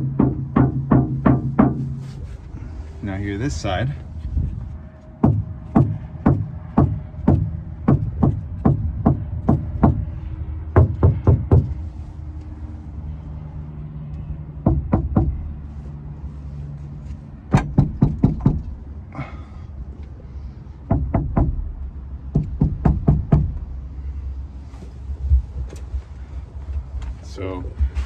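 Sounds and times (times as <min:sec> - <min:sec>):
knocking on van body panel: 0:00.0 - 0:02.0, 0:05.2 - 0:10.1, 0:10.8 - 0:11.8, 0:14.6 - 0:15.5, 0:17.5 - 0:18.8, 0:20.9 - 0:23.7.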